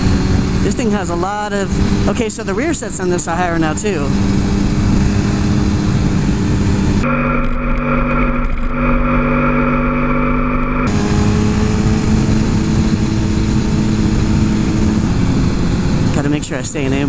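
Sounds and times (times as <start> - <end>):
wind noise on microphone: 0.0 - 2.2, 10.9 - 16.2
motorcycle engine running: 0.0 - 17.0.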